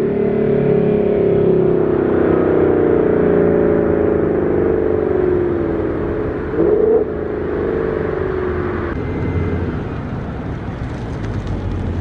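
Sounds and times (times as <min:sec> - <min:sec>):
car engine exhaust note: 0:00.0 - 0:12.0.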